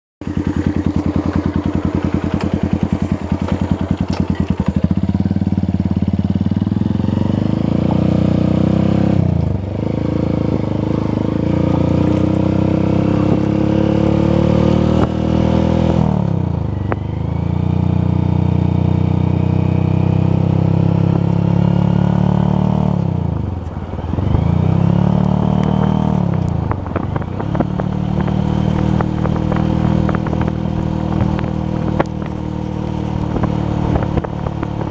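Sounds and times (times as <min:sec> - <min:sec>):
motorcycle engine idling: 0:00.2 - 0:08.5, 0:25.8 - 0:34.9
motorcycle accelerating through gears: 0:00.2 - 0:34.9.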